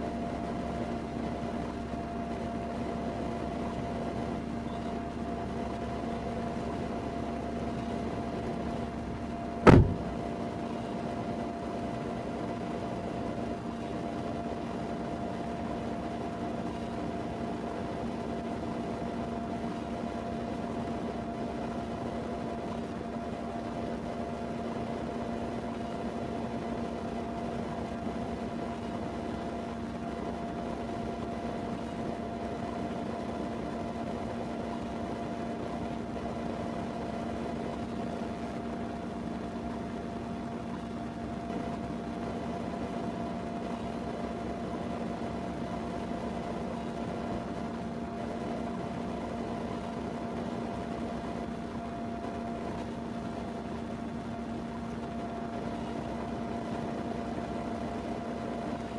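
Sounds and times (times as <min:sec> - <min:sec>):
ventilation fan noise: 0:00.0 - 0:58.9
vehicle engine hum: 0:03.6 - 0:10.6
steady hum tones: 0:04.1 - 0:10.4.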